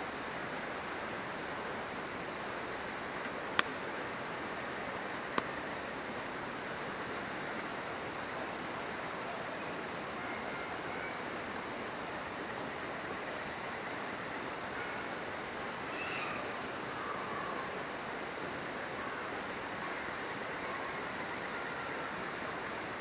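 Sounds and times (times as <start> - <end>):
river rushing: 0.0 - 23.0
campfire log popping: 3.2 - 3.8.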